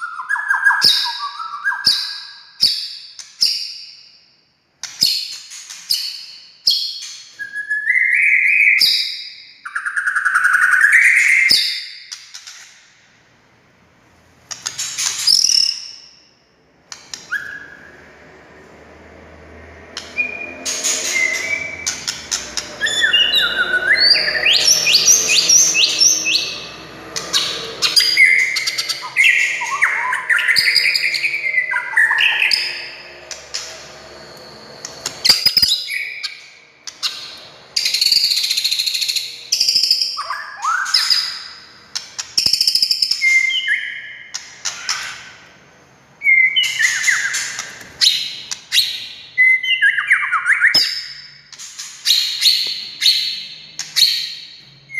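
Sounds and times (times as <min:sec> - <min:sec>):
bird singing whistles and trills: 0:00.0 - 0:04.0, 0:05.0 - 0:12.1, 0:17.1 - 0:18.0, 0:20.1 - 0:45.2, 0:46.2 - 0:54.9.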